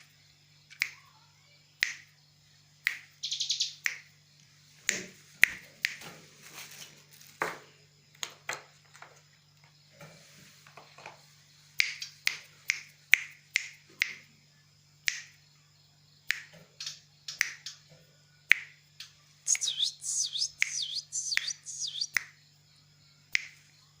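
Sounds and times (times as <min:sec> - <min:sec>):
bird calling with clicking notes: 0:18.5 - 0:22.3
bird downward-swooping chirps: 0:19.5 - 0:22.2.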